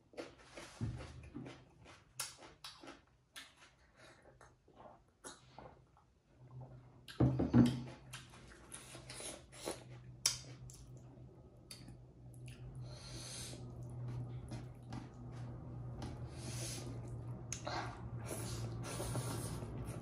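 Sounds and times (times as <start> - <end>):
chewing and lip smacks: 1.4 - 3.8, 8.1 - 12.9, 13.5 - 16.2
low hum: 10.4 - 20.0.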